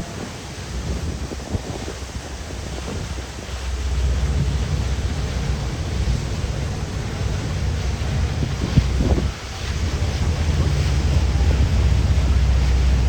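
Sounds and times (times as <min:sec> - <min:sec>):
boat rumble: 0:00.0 - 0:13.0
water hissing: 0:00.0 - 0:13.0
wind buffeting microphone: 0:00.0 - 0:13.0.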